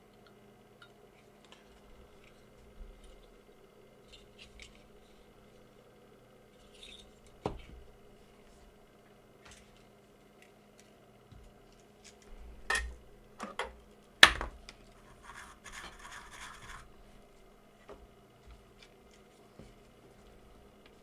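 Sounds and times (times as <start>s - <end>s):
scratching: 15.0s - 17.0s.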